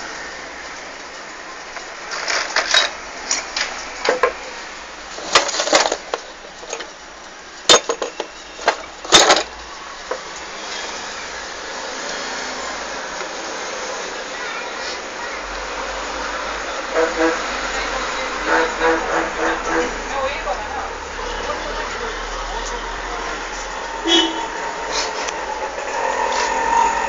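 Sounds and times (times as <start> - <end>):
metal tools clinking: 2.1 - 3.5, 5.2 - 6.9, 7.7 - 9.5.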